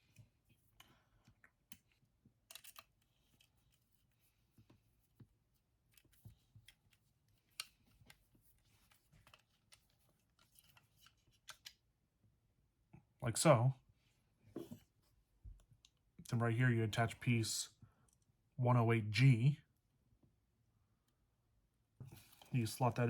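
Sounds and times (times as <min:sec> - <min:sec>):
small plastic parts clicking: 0:00.8 - 0:03.7, 0:08.9 - 0:11.8.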